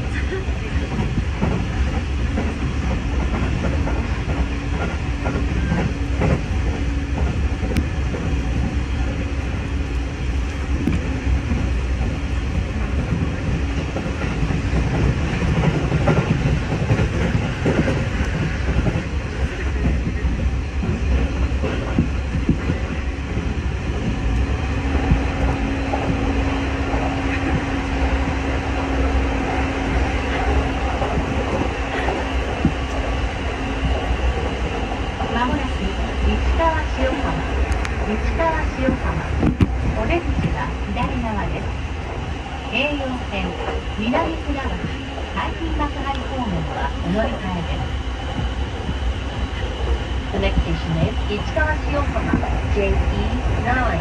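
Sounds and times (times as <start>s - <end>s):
train wheels rumbling on rail: 0.0s - 54.0s
clacks over rail joints: 0.1s - 42.2s.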